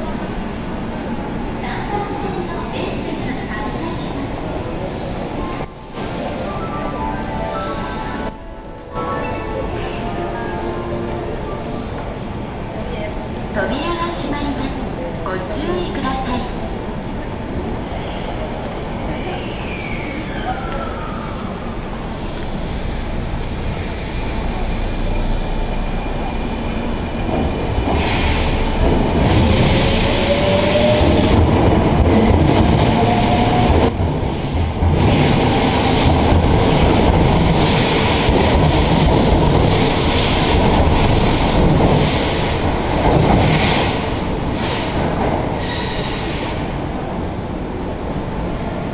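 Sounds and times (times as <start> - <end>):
electric train rumbling on rails: 0.0 - 48.9
rattling rail noise: 15.8 - 48.9.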